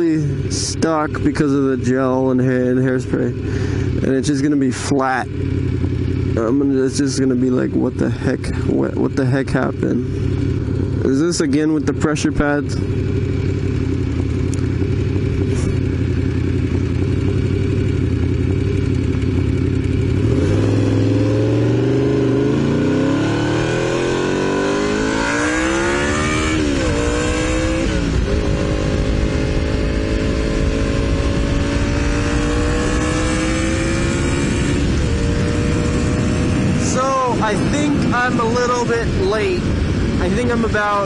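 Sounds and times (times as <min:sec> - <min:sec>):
motorcycle engine accelerating: 0:00.0 - 0:41.0
wind noise: 0:24.8 - 0:41.0.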